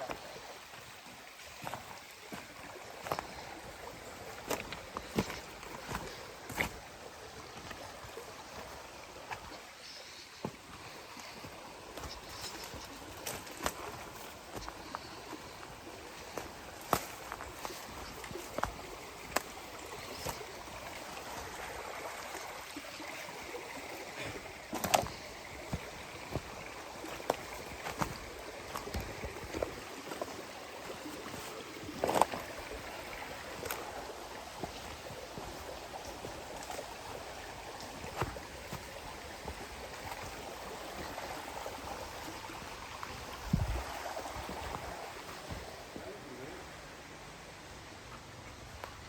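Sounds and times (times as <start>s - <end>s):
creek running: 0.0s - 49.0s
footsteps: 4.3s - 6.9s, 10.4s - 21.7s, 23.1s - 46.1s.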